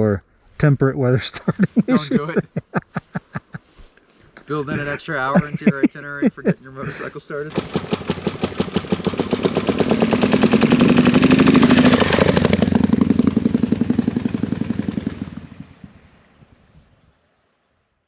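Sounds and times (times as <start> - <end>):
motorcycle engine running: 7.5 - 16.2.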